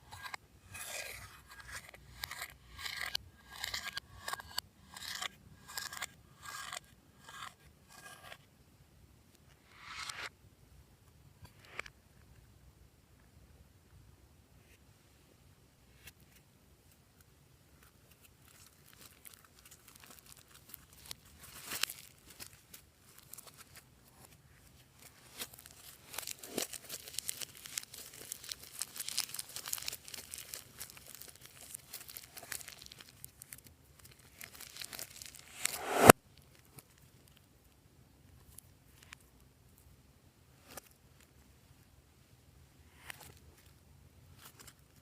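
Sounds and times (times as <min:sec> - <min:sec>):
slime crackling when squeezed: 0:26.1 - 0:36.1.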